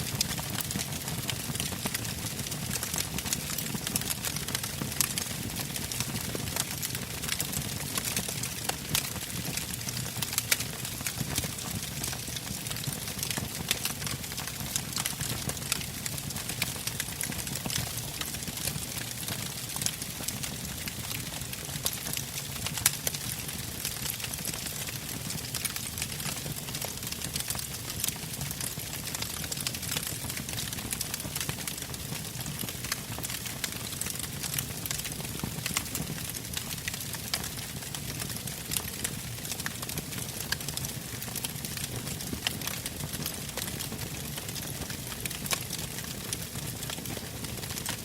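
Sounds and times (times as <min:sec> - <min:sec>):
low rumble of flames: 0:00.2 - 0:48.0
logs crackling and snapping: 0:06.6 - 0:10.8, 0:16.6 - 0:20.1, 0:26.8 - 0:32.0, 0:32.6 - 0:47.2.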